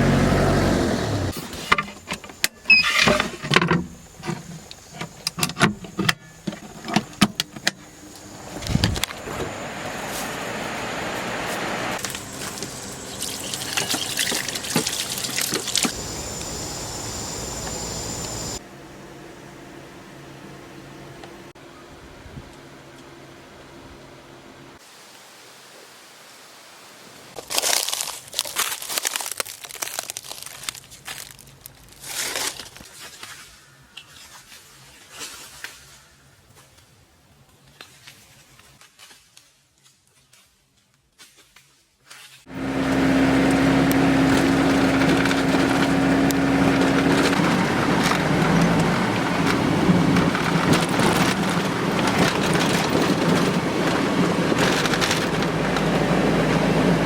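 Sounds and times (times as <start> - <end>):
water trickling from a tap: 12.5 - 15.9
rustling and crinkling: 27.4 - 42.5, 44.2 - 56.9.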